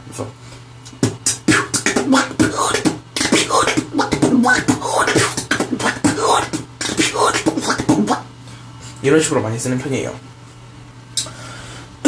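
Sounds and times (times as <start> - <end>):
beatboxed duck quacks: 0.9 - 8.3
person beatboxing: 0.9 - 8.3.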